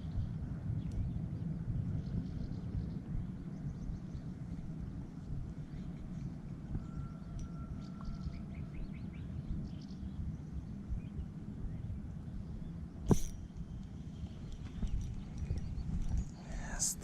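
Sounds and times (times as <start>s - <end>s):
sharp click: 13.1s - 13.9s.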